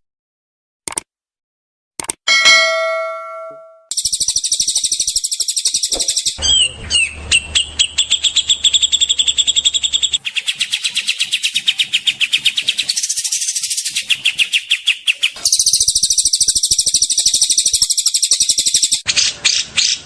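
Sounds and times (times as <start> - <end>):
ringing chime tone: 2.3 - 3.9
songbird singing: 3.9 - 20.0.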